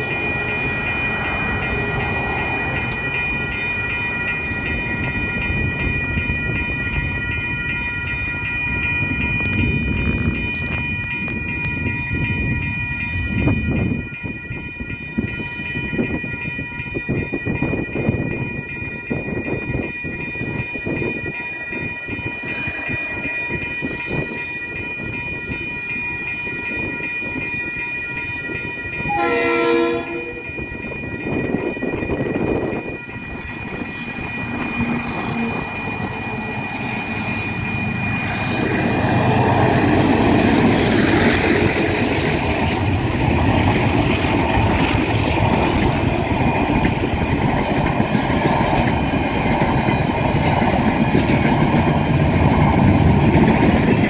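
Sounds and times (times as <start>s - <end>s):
level crossing bell ringing: 0.0s - 42.8s
locomotive horn blast: 29.1s - 30.5s
locomotive rumble: 29.1s - 54.0s.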